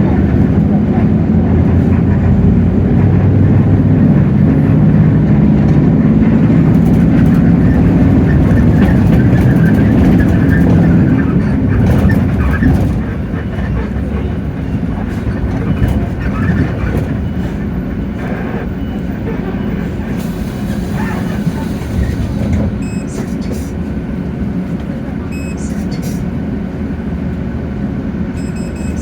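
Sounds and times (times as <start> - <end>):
diesel bus engine under load: 0.0 - 29.0
light interior rattles: 6.5 - 17.7.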